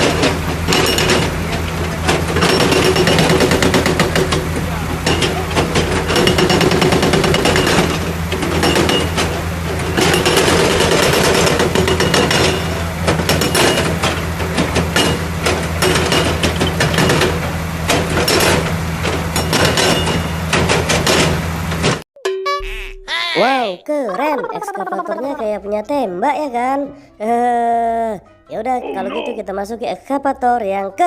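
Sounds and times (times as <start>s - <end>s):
hydraulic hammer pounding: 0.0s - 22.0s
machine engine hum: 0.0s - 22.0s.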